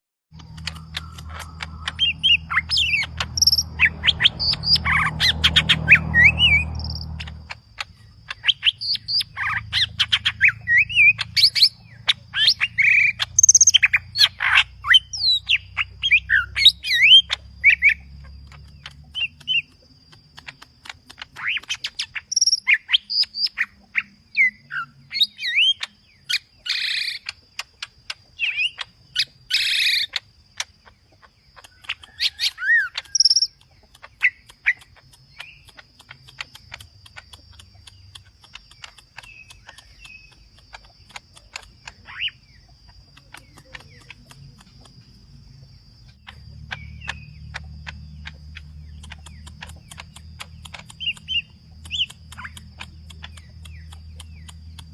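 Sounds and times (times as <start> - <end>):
bird singing varied whistles: 0.6 - 7.6, 8.3 - 19.7.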